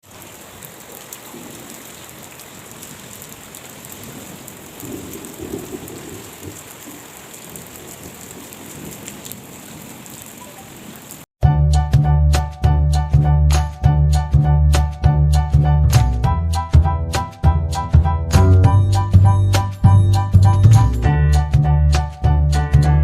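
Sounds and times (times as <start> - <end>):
rain pattering: 0.0 - 11.3.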